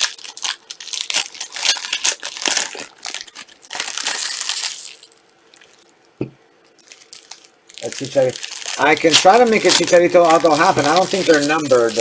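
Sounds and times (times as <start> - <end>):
plastic wrappers crinkling: 0.0 - 6.0, 6.6 - 12.0.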